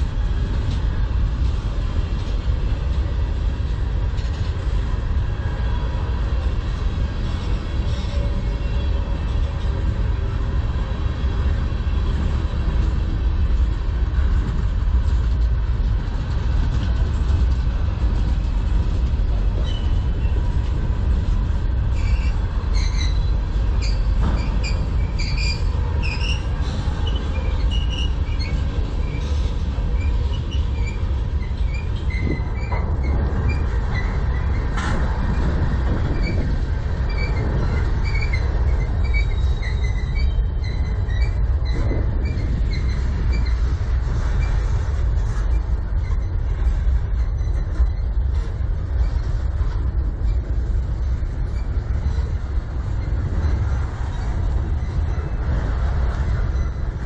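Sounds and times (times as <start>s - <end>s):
freight train wheels rumbling: 0.0s - 57.0s
high-pitched wheel squeals: 21.9s - 35.4s, 36.1s - 44.7s.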